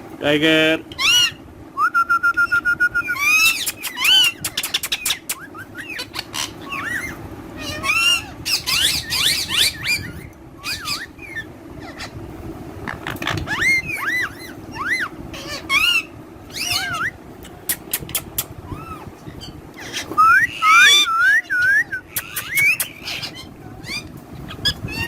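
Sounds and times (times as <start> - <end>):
parakeets chattering: 0.7 - 1.4, 3.1 - 25.0
parakeet screeches and whistles: 3.1 - 12.1, 13.5 - 17.2, 18.7 - 25.0.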